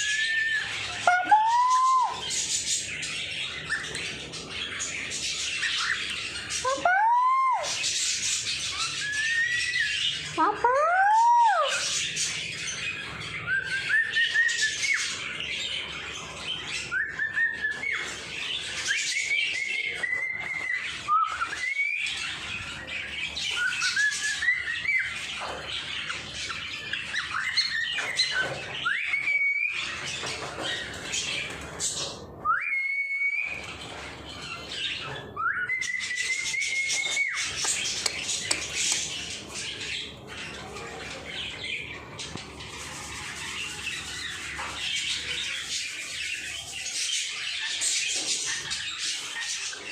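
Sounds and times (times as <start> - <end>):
rising whistled bird call: 0.0 - 2.3, 28.8 - 30.0, 32.4 - 33.7, 35.2 - 37.8
birds chattering and squawking: 0.0 - 49.9.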